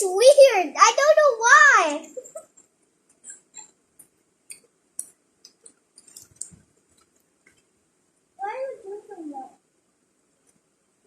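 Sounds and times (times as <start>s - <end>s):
small clicks and crackles: 2.4s - 7.8s.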